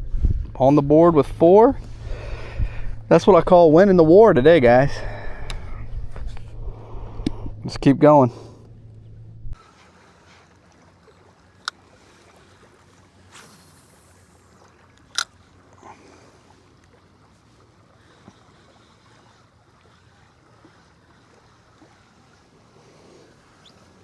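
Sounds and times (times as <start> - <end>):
faint water: 0.0 - 24.0
wind: 0.0 - 24.0
brief swish: 13.3 - 14.1.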